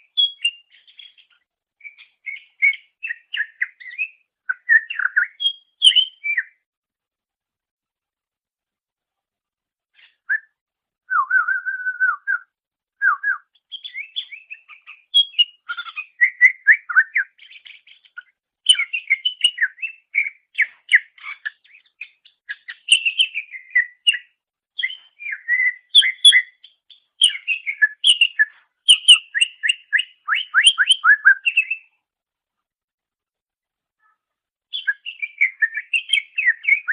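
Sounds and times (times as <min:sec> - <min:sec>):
bird singing varied song: 0:00.0 - 0:06.7, 0:09.9 - 0:32.1, 0:34.0 - 0:36.9.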